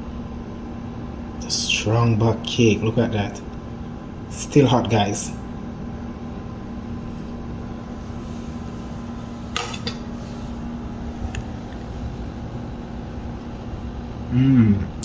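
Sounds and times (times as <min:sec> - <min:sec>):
kitchen appliance hum: 0:00.0 - 0:15.0
kitchenware clink: 0:09.6 - 0:10.1.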